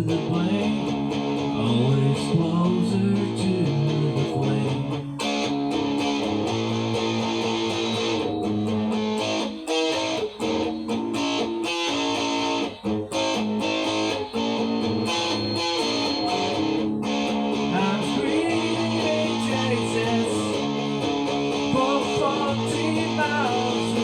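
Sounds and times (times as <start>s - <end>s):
rock guitar chords: 0.0s - 24.0s.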